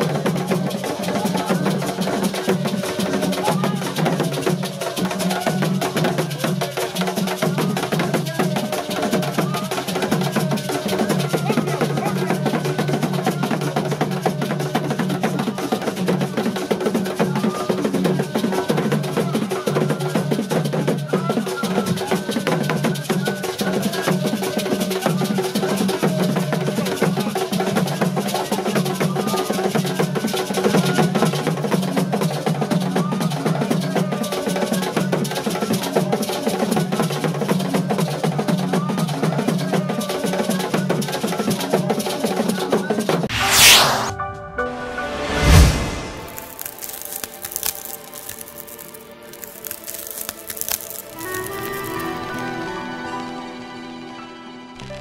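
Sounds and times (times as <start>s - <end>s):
many voices: 0.0s - 16.1s.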